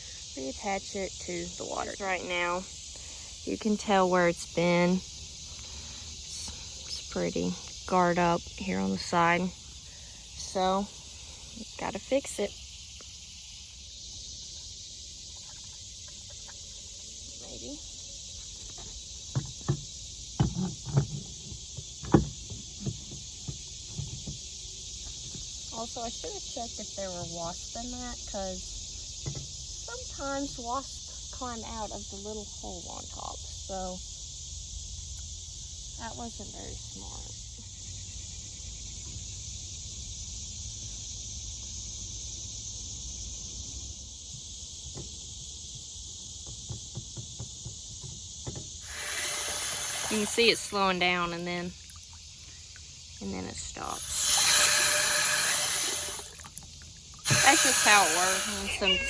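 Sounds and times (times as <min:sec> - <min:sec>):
insect chirring: 0:00.0 - 0:59.0
knocks and clunks of tank float: 0:18.6 - 0:25.5, 0:46.4 - 0:48.8.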